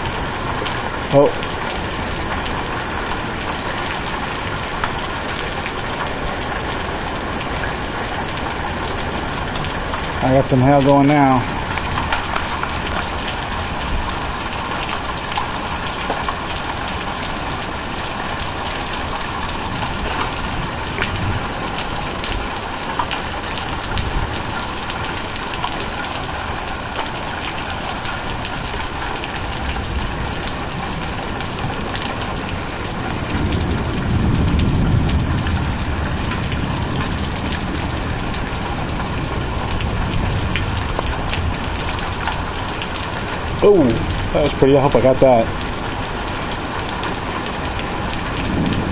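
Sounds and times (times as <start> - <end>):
heavy rain and hail: 0.0 - 48.9
thunder rumble: 28.3 - 45.9, 46.8 - 48.9.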